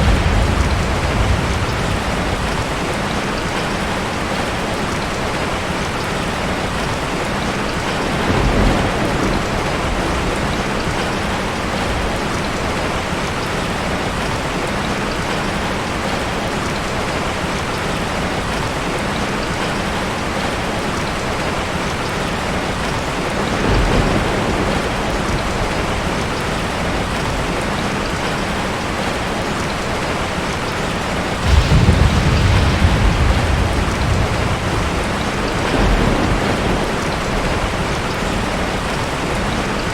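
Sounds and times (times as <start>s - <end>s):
deep thunder rumbles: 0.0s - 13.4s, 23.3s - 27.6s, 31.2s - 39.9s
rain pattering: 0.0s - 39.9s.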